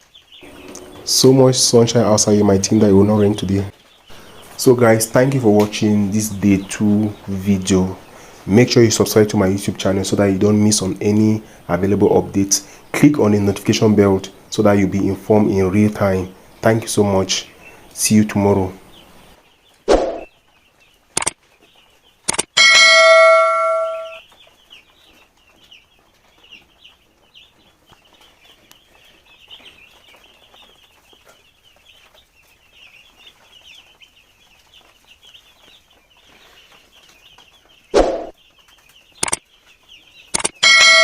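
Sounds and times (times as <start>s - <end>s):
chicks peeping: 0.0s - 41.0s
bell-like chime: 22.6s - 24.2s, 40.6s - 41.0s.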